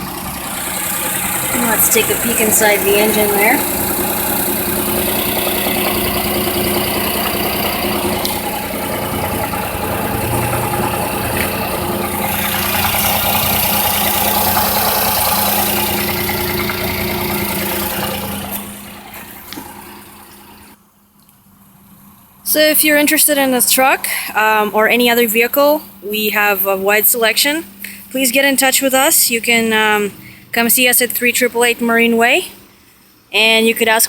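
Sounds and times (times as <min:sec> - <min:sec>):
engine idling: 0:00.0 - 0:20.8.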